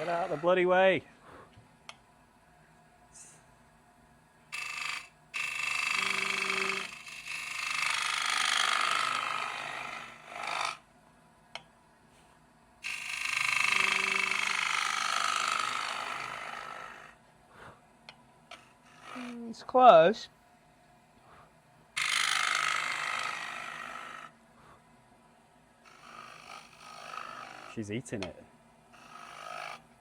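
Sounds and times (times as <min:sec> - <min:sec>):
lathe tool shaving wood: 0:00.0 - 0:00.9, 0:04.6 - 0:10.8, 0:12.8 - 0:17.2, 0:18.6 - 0:20.0, 0:22.0 - 0:24.3, 0:25.9 - 0:28.3, 0:29.0 - 0:29.8.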